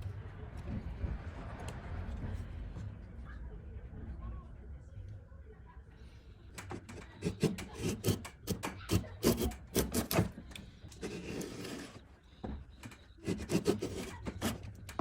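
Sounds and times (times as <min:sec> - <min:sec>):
hand tool scraping wood: 0:06.8 - 0:12.1, 0:13.1 - 0:15.0.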